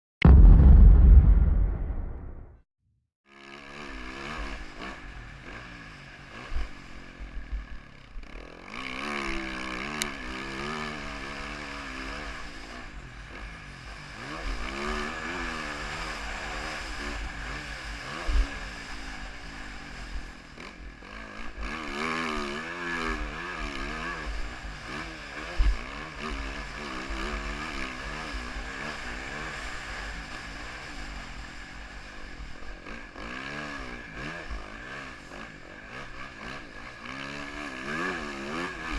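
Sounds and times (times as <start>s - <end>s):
low rumble: 0.2s - 2.6s
sharp thumps: 0.2s - 2.6s
motorbike engine revving: 33.0s - 38.9s.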